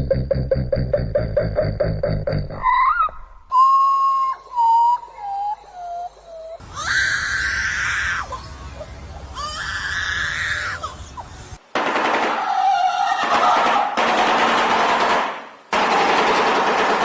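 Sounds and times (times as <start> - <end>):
bird screeching: 5.3 - 8.6, 9.3 - 11.4.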